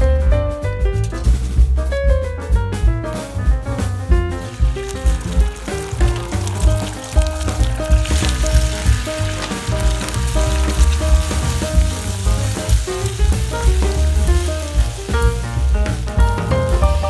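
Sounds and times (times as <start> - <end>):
background music with bass line: 0.0 - 17.0
stirring ticks: 4.3 - 17.0
food sizzling in a pan: 4.4 - 17.0.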